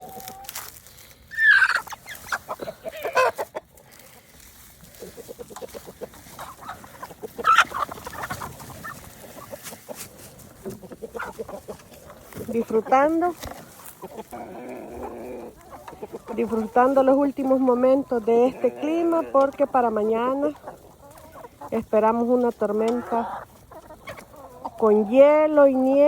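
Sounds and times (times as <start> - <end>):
hens clucking: 0.0 - 26.0.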